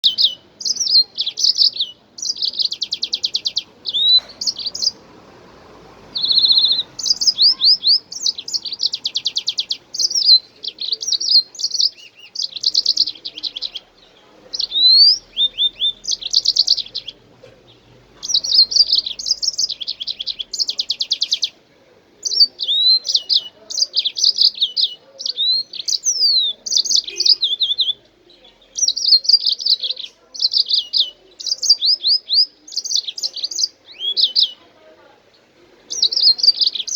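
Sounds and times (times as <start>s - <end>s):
cockatiel singing: 0.0s - 5.3s, 6.0s - 21.6s, 22.2s - 28.0s, 35.9s - 36.9s.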